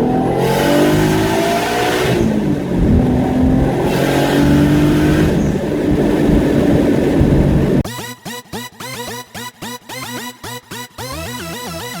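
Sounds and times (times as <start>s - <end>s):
car engine accelerating: 0.0s - 7.8s.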